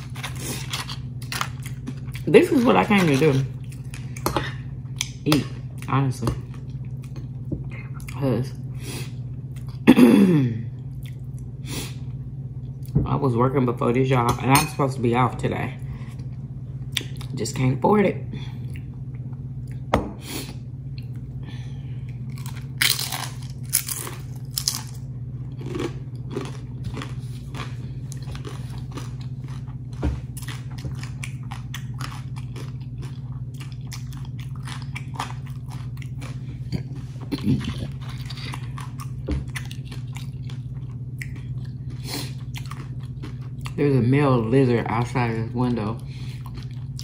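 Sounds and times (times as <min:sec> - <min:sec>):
person crunching tortilla chips: 0:00.0 - 0:04.2, 0:22.1 - 0:43.8
steady low hum: 0:00.0 - 0:47.0.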